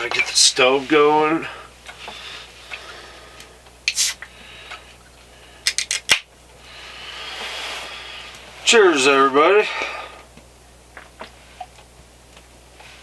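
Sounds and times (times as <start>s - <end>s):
soft hiss: 0.0s - 5.6s
small hard objects clicking: 5.7s - 6.2s.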